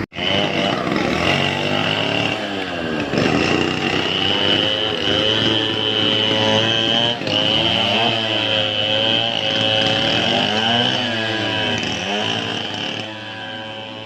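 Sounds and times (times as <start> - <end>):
small engine revving: 0.0 - 14.0.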